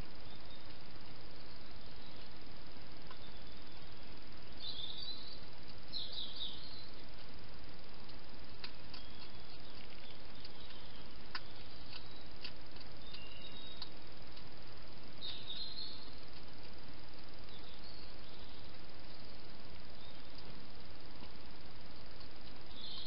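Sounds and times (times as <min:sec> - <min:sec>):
small birds chirping: 0:00.0 - 0:23.0
steady hiss: 0:00.0 - 0:23.0
sharp clicks: 0:08.0 - 0:14.5.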